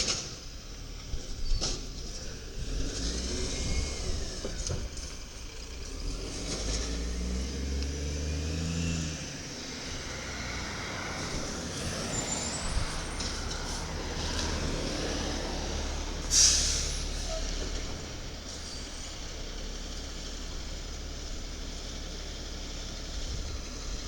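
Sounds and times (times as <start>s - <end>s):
garbage truck diesel engine rumbling: 0.0s - 24.0s
air brakes hissing: 11.0s - 17.9s.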